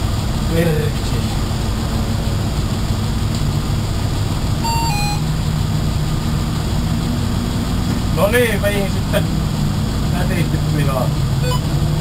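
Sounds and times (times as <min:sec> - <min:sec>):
two-note electronic beep: 0:04.6 - 0:05.4, 0:11.4 - 0:11.7.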